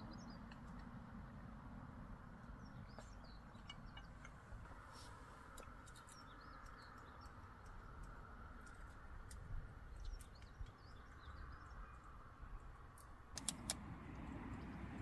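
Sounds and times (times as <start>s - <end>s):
small birds chirping: 0.0s - 15.0s
light clicks: 13.0s - 14.3s
low background rumble: 13.4s - 15.0s.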